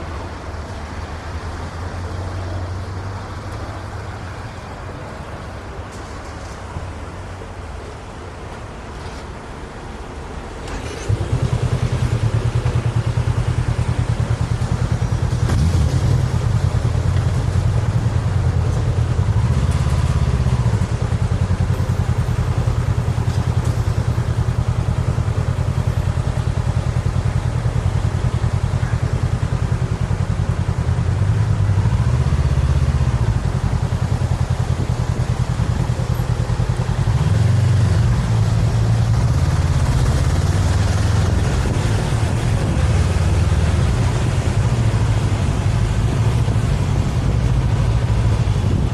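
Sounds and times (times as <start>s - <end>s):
motorcycle engine running: 10.8s - 48.9s.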